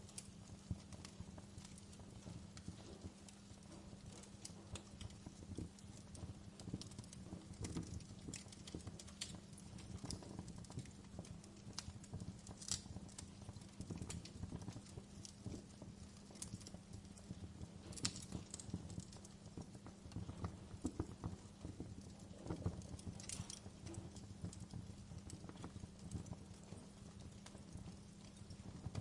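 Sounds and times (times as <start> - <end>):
rumble of fire flames: 0.0 - 29.0
wood fire crackling and popping: 0.0 - 29.0.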